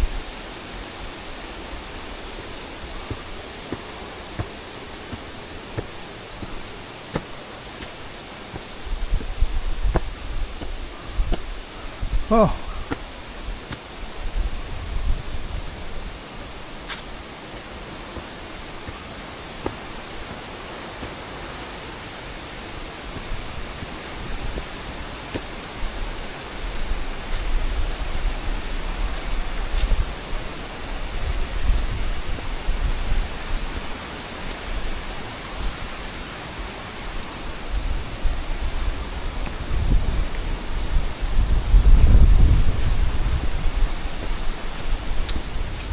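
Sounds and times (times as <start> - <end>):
wind buffeting microphone: 0.0 - 36.0, 36.6 - 45.9
flowing river water: 0.0 - 45.9.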